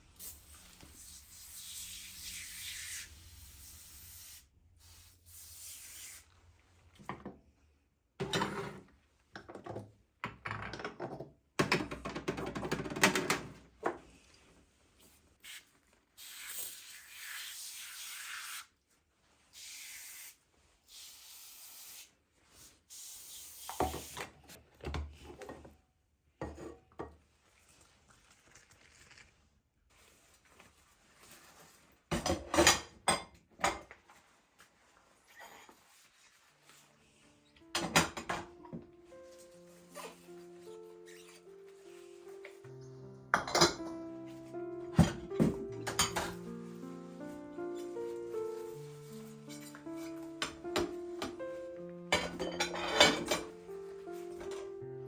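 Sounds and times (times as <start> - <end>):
scraping in kitchen: 8.2 - 8.9, 52.1 - 54.6.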